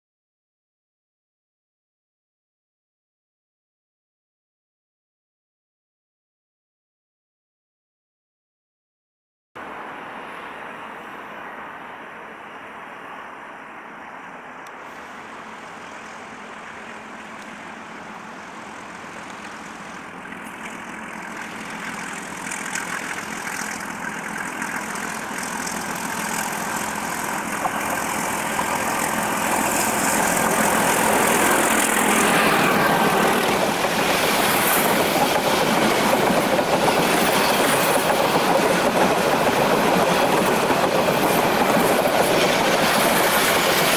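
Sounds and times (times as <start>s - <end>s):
diesel locomotive engine: 9.6s - 43.9s
train wheels clacking on rails: 16.9s - 43.9s.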